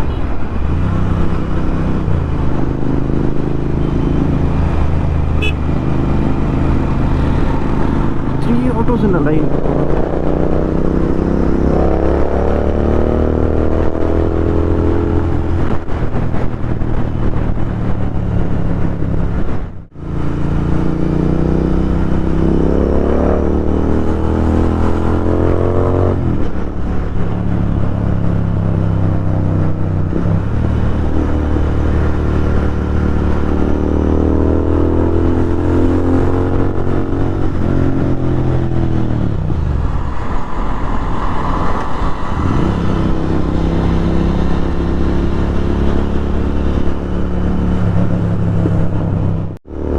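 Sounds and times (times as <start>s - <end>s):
motorcycle engine revving: 0.9s - 16.5s, 27.2s - 40.0s, 42.0s - 49.9s.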